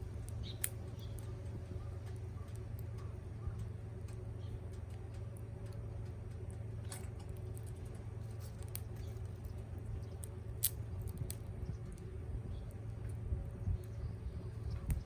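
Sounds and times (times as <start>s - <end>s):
campfire crackling: 0.0s - 15.0s
steady low hum: 0.0s - 15.0s
sharp pops of burning wood: 0.2s - 1.0s, 10.0s - 12.0s.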